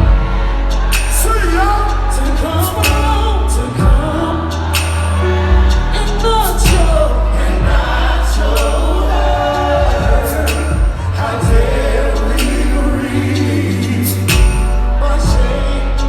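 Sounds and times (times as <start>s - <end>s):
heavy steady bass line: 0.0s - 16.0s
vocal group singing harmonies: 0.0s - 16.0s
drum hits: 3.8s - 5.8s, 6.6s - 9.1s, 9.8s - 12.8s, 14.2s - 15.6s.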